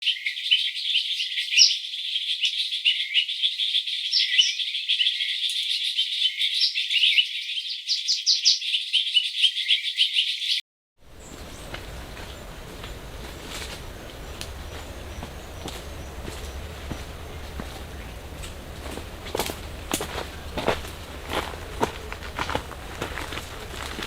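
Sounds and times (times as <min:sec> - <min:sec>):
quiet outdoor hiss: 0:11.0 - 0:24.0.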